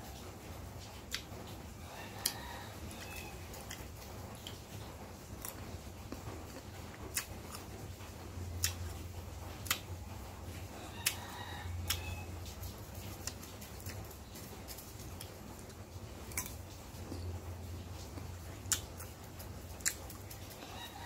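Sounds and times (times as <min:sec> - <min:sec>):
low steady hum: 0:00.0 - 0:21.0
crunchy bites and chewing: 0:02.2 - 0:09.0, 0:09.6 - 0:09.9, 0:13.0 - 0:17.3, 0:18.2 - 0:20.9.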